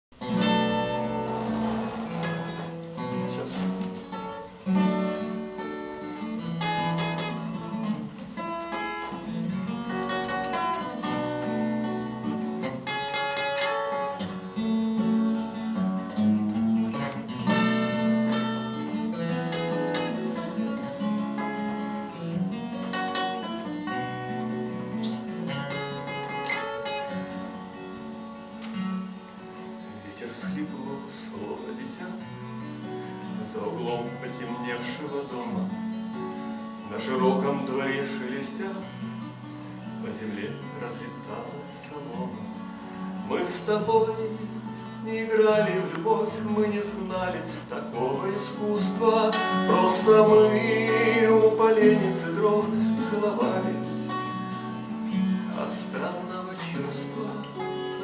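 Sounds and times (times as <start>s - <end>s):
acoustic guitar playing: 0.1s - 58.0s.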